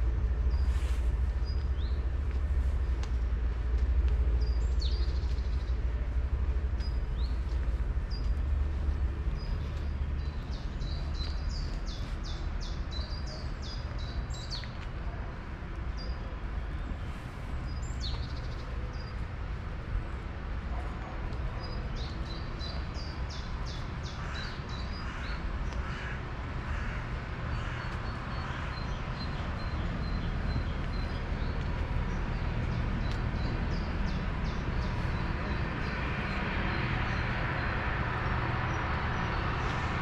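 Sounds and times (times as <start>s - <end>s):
songbirds chirping: 0.0s - 40.0s
steady low rumble: 0.0s - 40.0s.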